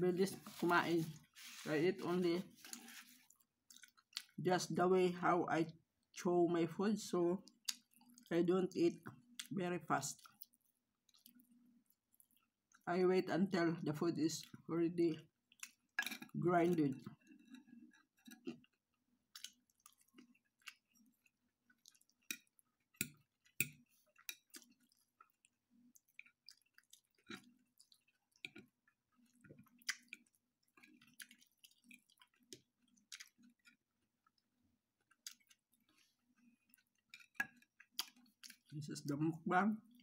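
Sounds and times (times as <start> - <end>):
person chewing: 0.3 - 1.7, 2.4 - 4.4, 7.4 - 8.3, 10.2 - 12.8, 15.4 - 38.7.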